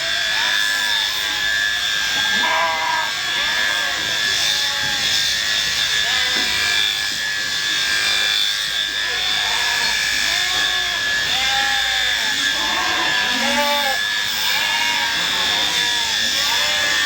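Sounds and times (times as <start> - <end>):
electric shears whining: 0.0 - 17.0
short pitched bleats: 2.2 - 5.1, 9.2 - 17.0.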